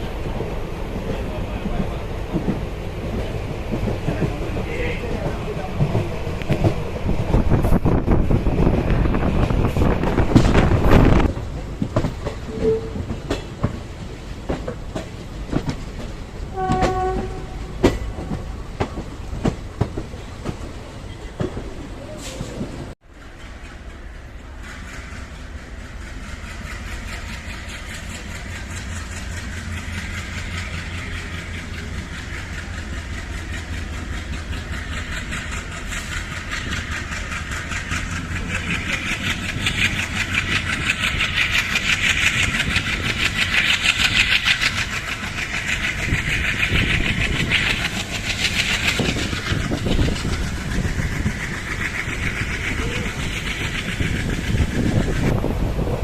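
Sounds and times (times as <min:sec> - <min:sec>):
train wheels rumbling and rattling: 0:00.0 - 0:56.0.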